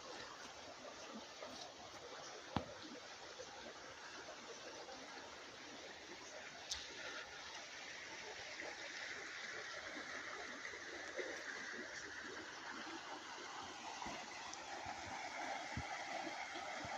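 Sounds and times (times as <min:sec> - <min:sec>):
stream water flowing: 0:00.0 - 0:16.9.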